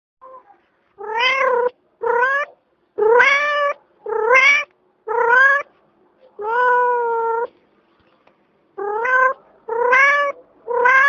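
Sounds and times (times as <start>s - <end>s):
cat meowing: 0.2s - 5.7s, 6.4s - 7.5s, 8.8s - 11.0s.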